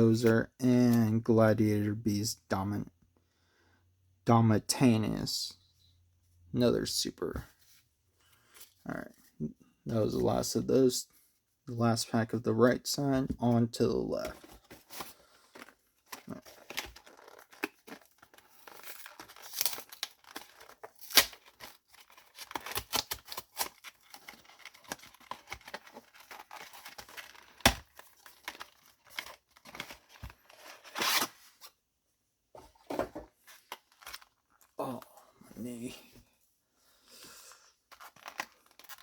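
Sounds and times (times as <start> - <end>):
packaging crinkling: 14.3 - 31.3, 37.9 - 39.0
packaging tearing: 14.4 - 31.4, 37.9 - 39.0.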